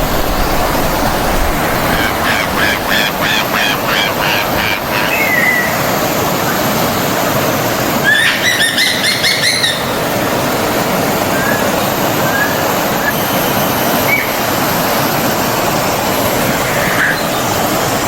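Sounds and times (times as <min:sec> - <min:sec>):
stream water running: 0:00.0 - 0:18.0
songbird singing: 0:00.3 - 0:05.9.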